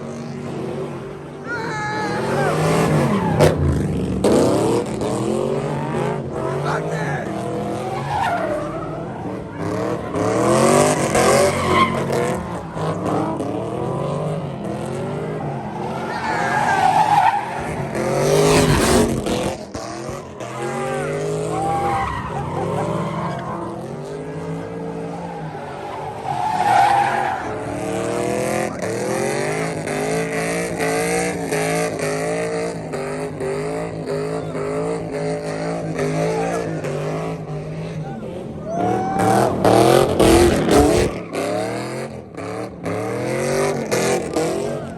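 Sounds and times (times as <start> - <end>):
car engine revving: 0.0 - 44.9
tyres screeching: 15.5 - 18.7, 25.0 - 28.2.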